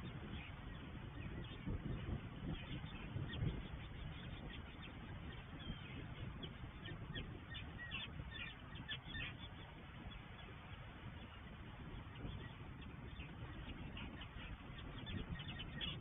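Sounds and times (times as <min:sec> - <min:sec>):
water birds calling: 0:00.0 - 0:16.0.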